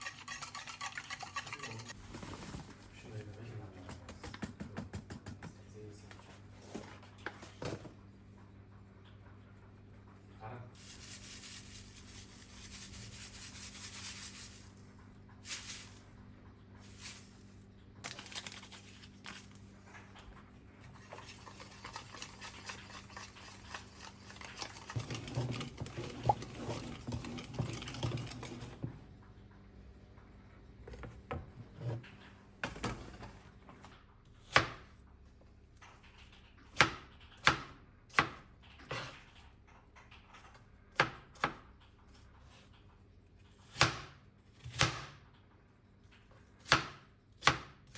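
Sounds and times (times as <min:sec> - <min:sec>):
rubbing and scraping: 0:00.0 - 0:02.1, 0:20.9 - 0:28.8
knife chopping on cutting board: 0:43.6 - 0:45.2.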